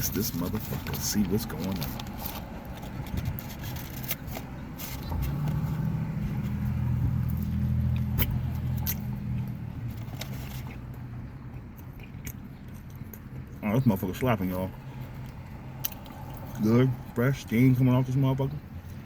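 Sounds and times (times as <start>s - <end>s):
sandwich wrapper crinkling: 0.0s - 5.6s
car engine hum passing by: 3.7s - 11.5s.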